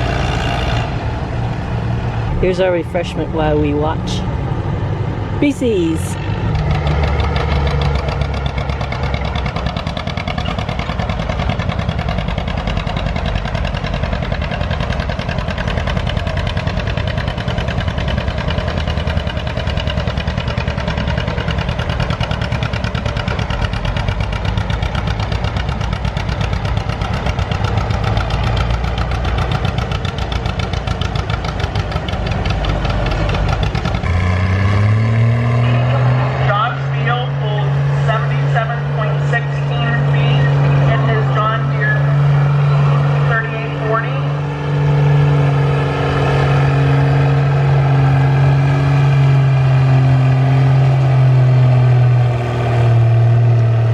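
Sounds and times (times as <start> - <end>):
engine revving up: 0.0 - 13.0, 31.2 - 53.9
tractor engine under heavy load: 0.0 - 53.9.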